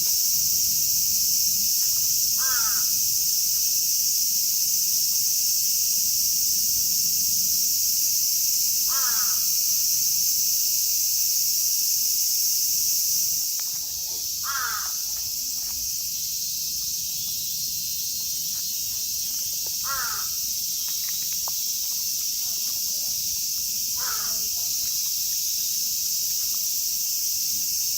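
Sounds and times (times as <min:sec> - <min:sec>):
cicadas droning: 0:00.0 - 0:27.9
crow cawing: 0:02.4 - 0:03.0, 0:08.9 - 0:09.5, 0:14.4 - 0:15.1, 0:19.8 - 0:20.4, 0:24.0 - 0:24.5.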